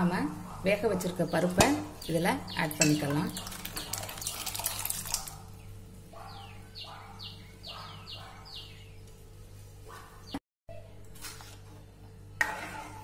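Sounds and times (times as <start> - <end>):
bird chirping: 5.6 - 9.1.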